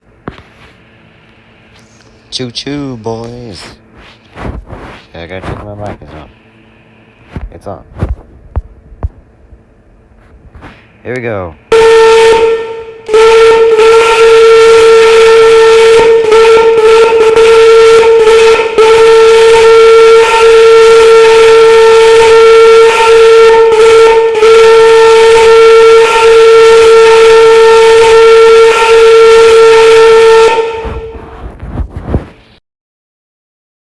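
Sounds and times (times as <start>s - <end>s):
train whistle: 11.7s - 31.5s.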